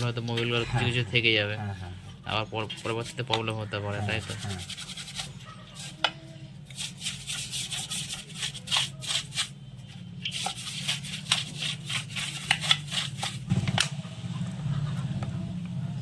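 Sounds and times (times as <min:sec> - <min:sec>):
scratchy scrubbing strokes: 0:02.3 - 0:09.6, 0:10.2 - 0:13.5.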